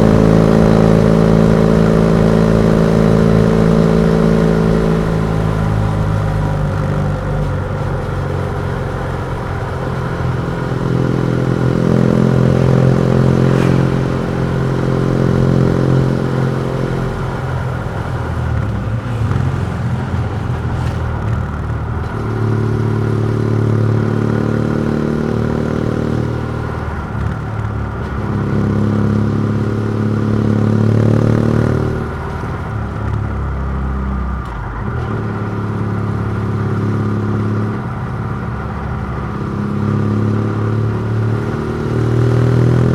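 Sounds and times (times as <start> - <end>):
motorcycle engine under load: 0.0 - 42.9.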